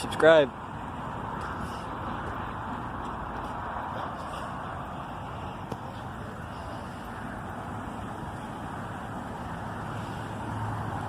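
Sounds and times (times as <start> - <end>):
car engines rumbling: 0.0 - 11.0.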